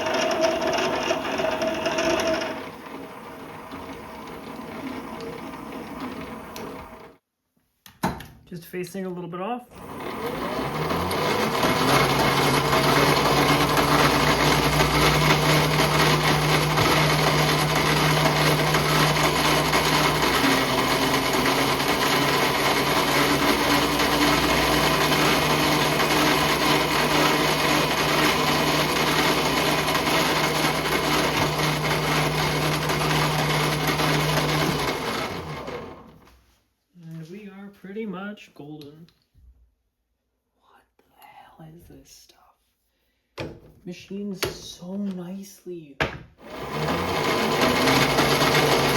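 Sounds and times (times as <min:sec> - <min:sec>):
lathe running: 0:00.0 - 0:07.1, 0:09.8 - 0:36.2, 0:46.4 - 0:48.9.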